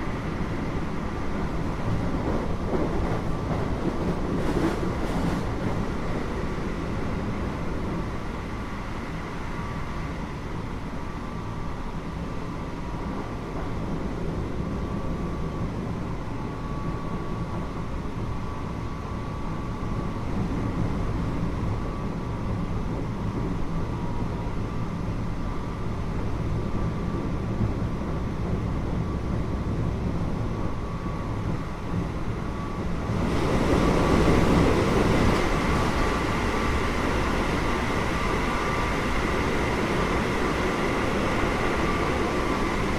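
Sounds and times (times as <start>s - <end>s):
train wheels rumbling on rails: 0.0s - 8.7s, 25.9s - 42.9s.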